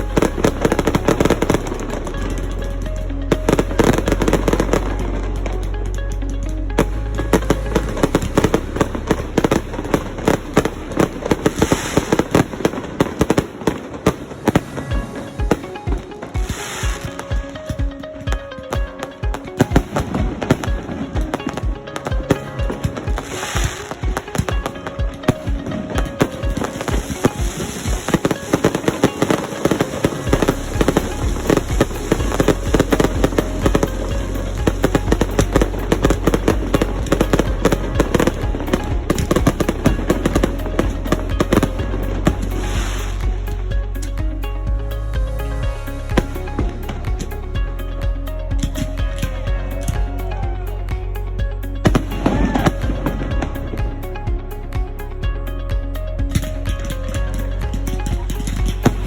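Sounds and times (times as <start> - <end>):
fireworks bangs and pops: 0.0 - 5.6, 6.7 - 44.4
steady low rumble: 0.0 - 15.4, 30.2 - 59.0
hissing crackle: 19.4 - 44.3.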